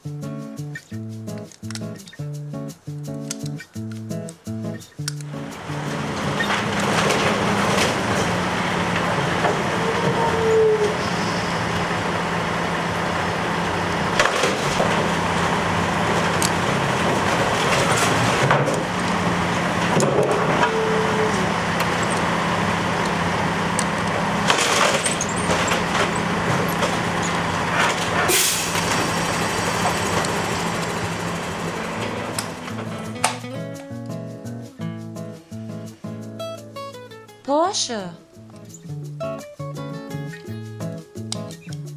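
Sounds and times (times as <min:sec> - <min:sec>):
garbage truck engine droning: 0:05.2 - 0:33.8
sharp clanks: 0:23.8 - 0:33.5
short whine: 0:28.2 - 0:31.2
hisses: 0:28.3 - 0:30.8.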